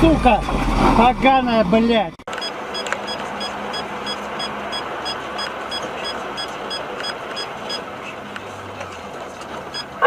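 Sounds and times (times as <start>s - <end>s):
vehicle road and engine noise: 0.0s - 10.0s
high electronic beeps: 2.4s - 7.8s.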